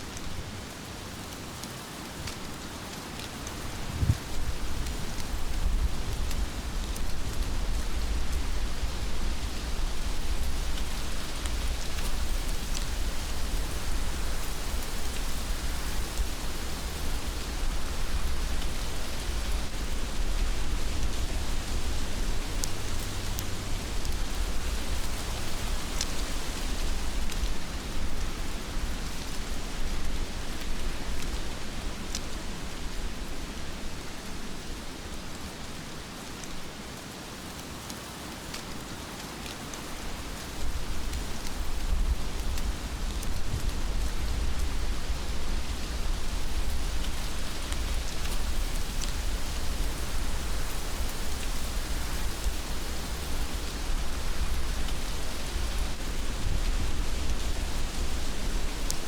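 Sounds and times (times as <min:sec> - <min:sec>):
heavy rain falling: 0:00.0 - 0:59.0
sharp raindrop clicks: 0:17.4 - 0:32.4.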